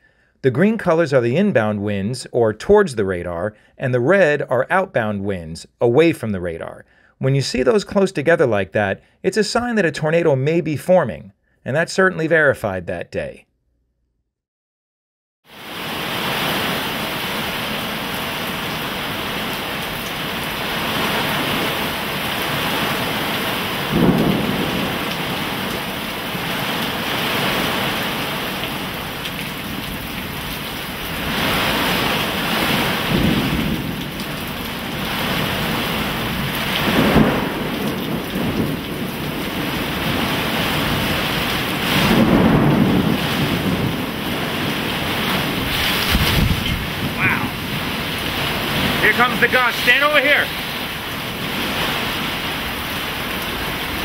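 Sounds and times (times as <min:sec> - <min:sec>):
heavy rain pouring: 0:15.5 - 0:54.0.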